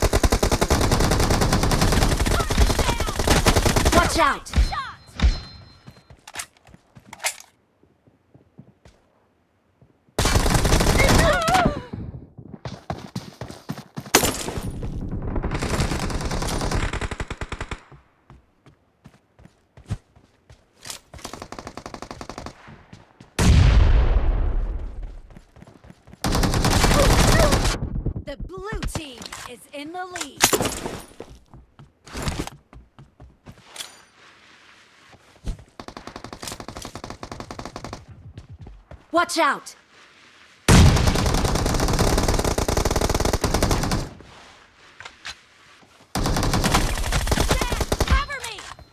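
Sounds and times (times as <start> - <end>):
video game automatic gunfire: 26.2 - 28.2.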